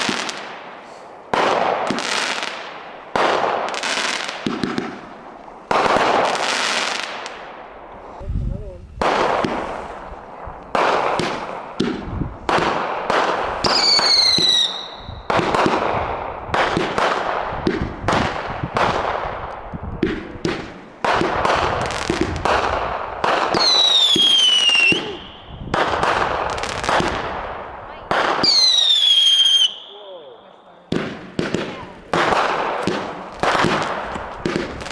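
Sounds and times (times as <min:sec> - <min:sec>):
fireworks bangs with crackling: 0:00.0 - 0:08.2, 0:08.9 - 0:30.0, 0:30.9 - 0:34.9
fireworks whistles falling in pitch: 0:13.6 - 0:15.4, 0:23.6 - 0:25.5, 0:28.4 - 0:30.0.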